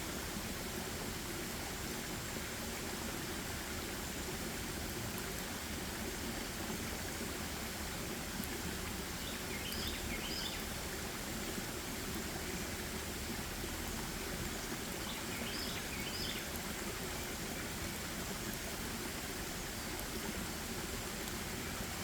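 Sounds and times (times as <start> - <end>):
stream water flowing: 0.0 - 22.0
small bird singing: 9.2 - 10.6, 15.0 - 16.5.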